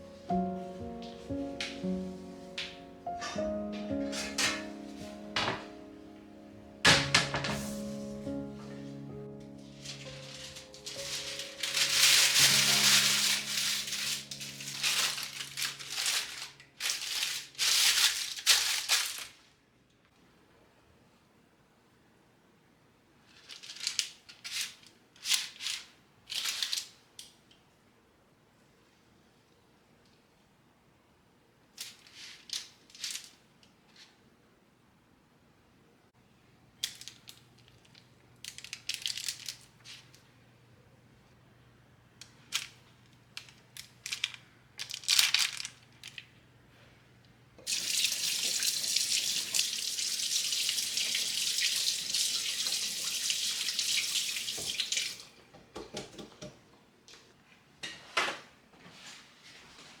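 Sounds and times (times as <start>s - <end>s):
tap running into sink: 51.0s - 56.6s.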